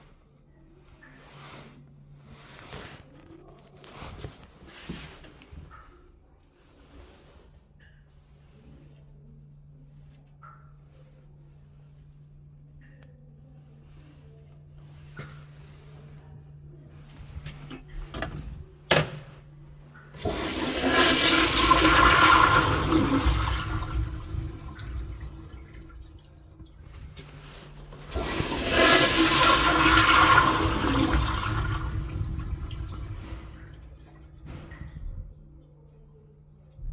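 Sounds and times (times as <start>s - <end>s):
water rushing through toilet bowl: 12.8s - 36.9s
toilet flush click: 17.7s - 35.8s.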